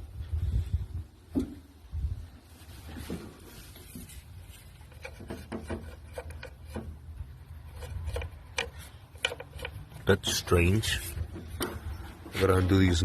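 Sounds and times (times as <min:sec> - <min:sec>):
light sharp clicks and knocks: 0:07.8 - 0:10.6.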